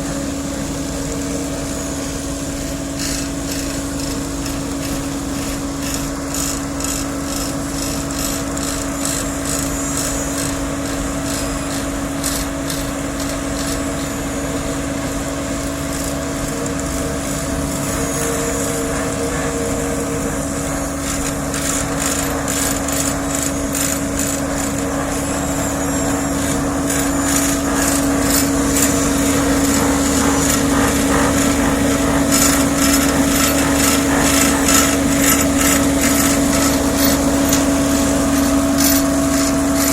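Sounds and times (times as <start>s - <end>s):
paver engine hum: 9.7s - 39.9s
rattling and scraping: 15.6s - 39.9s.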